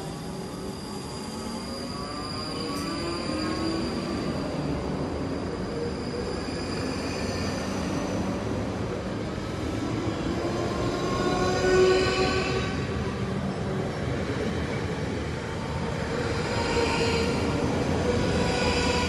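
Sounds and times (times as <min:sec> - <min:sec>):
train wheel and rail rumble: 0:00.0 - 0:19.0.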